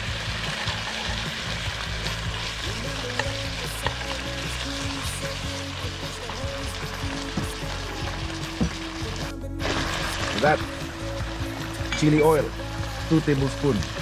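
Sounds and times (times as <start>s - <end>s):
meat sizzling in sauce: 0.0s - 14.0s
metal utensil stirring: 0.2s - 12.7s
utensil clicking against pan: 3.0s - 4.4s.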